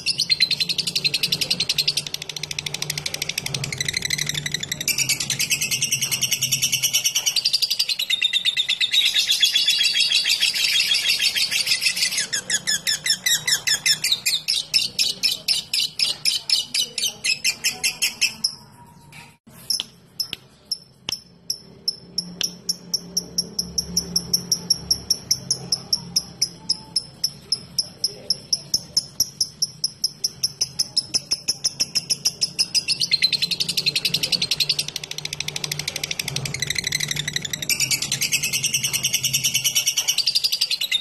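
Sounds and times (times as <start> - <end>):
bird chattering trill: 0.0 - 18.8, 19.7 - 41.0
high bird chirping: 0.0 - 41.0.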